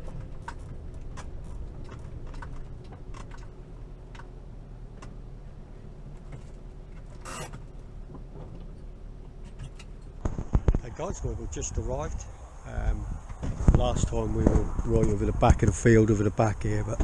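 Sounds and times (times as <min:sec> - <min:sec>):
clicks and rattles: 0:00.0 - 0:04.4
engine running low rumble: 0:00.0 - 0:17.0.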